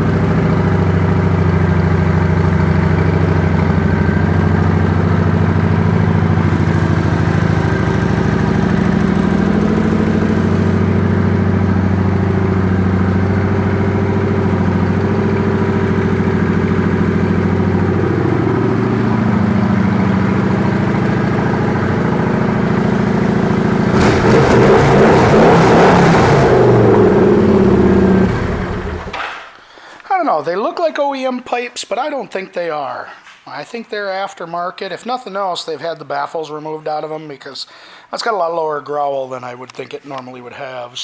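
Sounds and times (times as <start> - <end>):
motorcycle engine idling: 0.0 - 24.0, 26.5 - 29.2.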